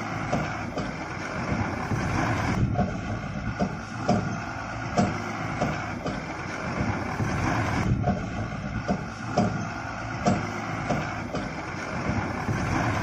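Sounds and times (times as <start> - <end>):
truck engine running: 0.0 - 13.0
short irregular knocks: 8.0 - 11.6.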